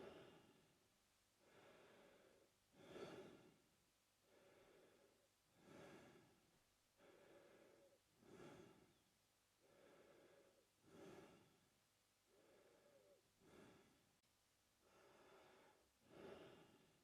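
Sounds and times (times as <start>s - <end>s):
man breathing through mouth: 1.4s - 3.6s, 7.0s - 9.0s, 9.6s - 11.6s, 14.8s - 17.0s.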